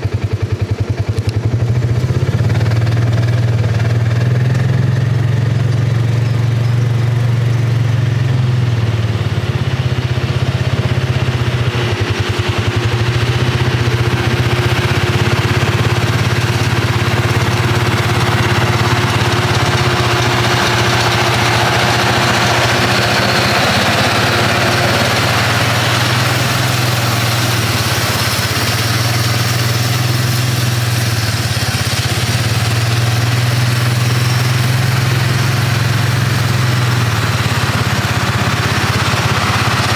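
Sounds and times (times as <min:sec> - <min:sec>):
tractor engine humming: 0:00.0 - 0:39.9.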